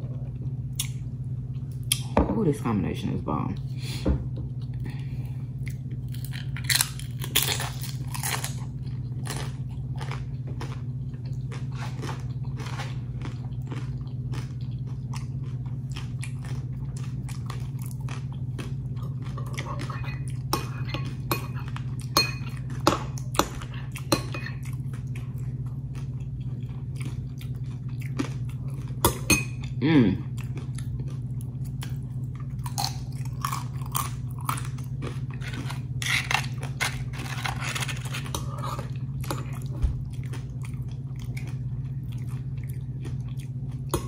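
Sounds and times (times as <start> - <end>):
low hum: 0.0 - 44.0
tortilla chips crunching: 5.7 - 24.2, 29.8 - 44.0.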